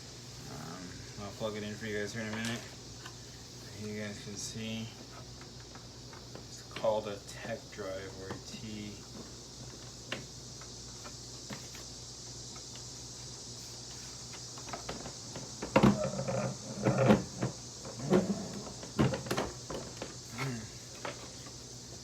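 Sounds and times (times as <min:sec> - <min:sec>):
steady hiss: 0:00.0 - 0:22.0
vacuum cleaner parts knocking: 0:14.5 - 0:20.3.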